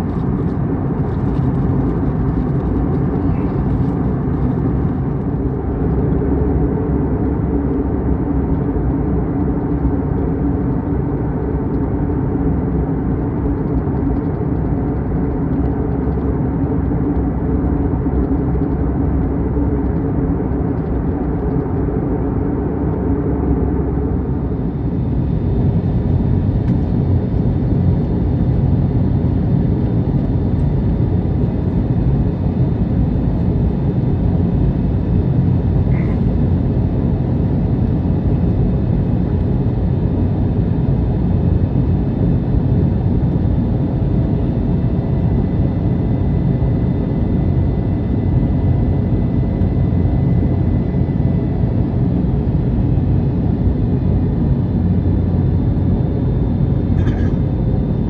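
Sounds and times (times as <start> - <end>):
airplane cabin engine drone: 0.0 - 58.0.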